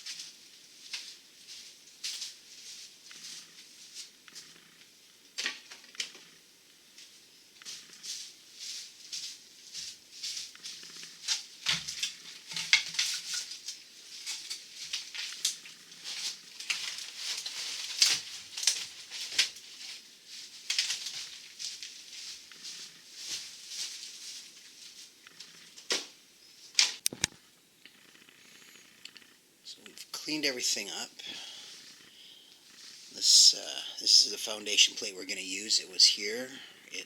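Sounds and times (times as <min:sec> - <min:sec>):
debris scraping and clattering: 0:10.3 - 0:24.6.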